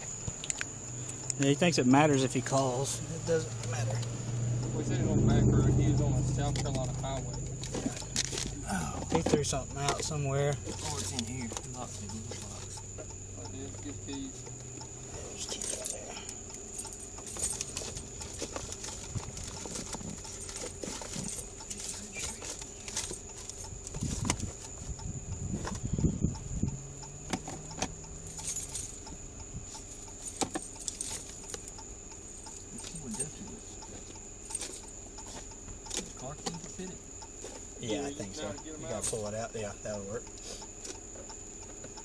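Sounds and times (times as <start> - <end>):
steady high-pitched whine: 0.0 - 40.7
clicks rattles and jangling: 15.3 - 24.7, 27.3 - 29.1, 29.7 - 33.6, 34.4 - 35.0.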